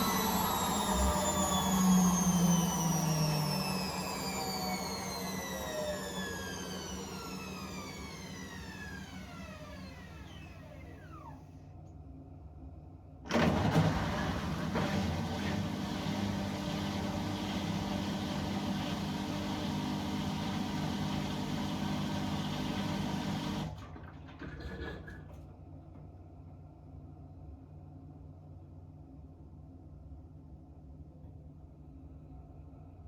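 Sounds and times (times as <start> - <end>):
appliance motor winding down: 0.0 - 11.5, 13.3 - 23.9
steady motor hum: 0.0 - 11.6, 13.3 - 23.8.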